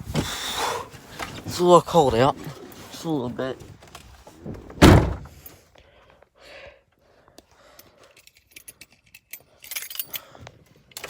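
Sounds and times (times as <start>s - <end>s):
keys jingling: 8.1s - 11.0s.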